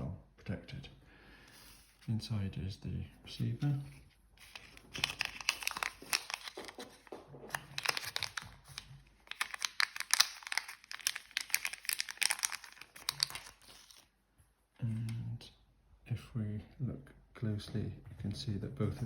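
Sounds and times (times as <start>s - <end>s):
plastic packaging crinkling: 4.4s - 14.1s.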